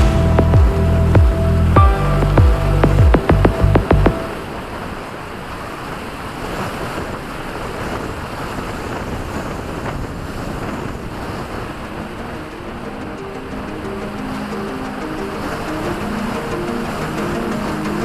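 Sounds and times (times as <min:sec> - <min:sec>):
music: 0:00.0 - 0:04.5, 0:11.9 - 0:18.0.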